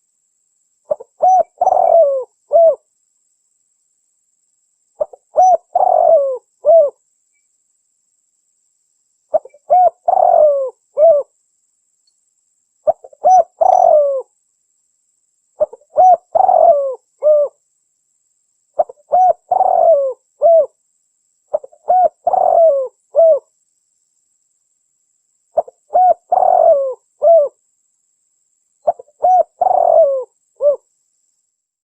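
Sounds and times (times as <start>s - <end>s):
dove cooing: 0.9s - 2.8s, 5.0s - 7.0s, 9.3s - 11.3s, 12.9s - 14.3s, 15.6s - 17.6s, 18.8s - 20.8s, 21.5s - 23.5s, 25.6s - 27.6s, 28.8s - 30.9s.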